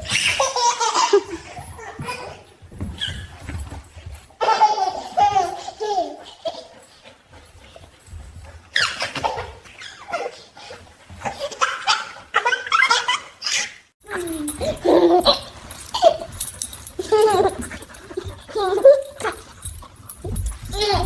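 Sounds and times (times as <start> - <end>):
baby laughing: 0.0 - 2.4, 17.0 - 19.4.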